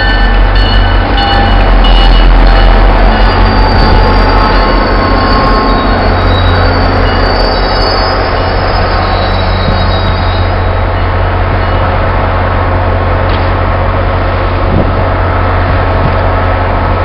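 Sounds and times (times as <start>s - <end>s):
train wheel squeal: 0.0s - 12.0s
train rumbling past: 0.0s - 17.0s.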